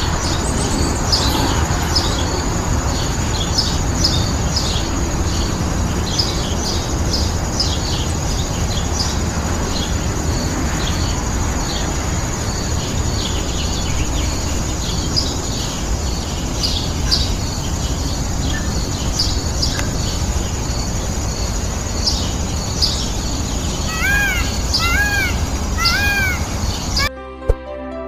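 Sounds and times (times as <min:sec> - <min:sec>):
loud arched bird calls: 0:00.0 - 0:27.1
outdoor background noise: 0:00.0 - 0:27.1
small birds chirping: 0:00.0 - 0:27.1.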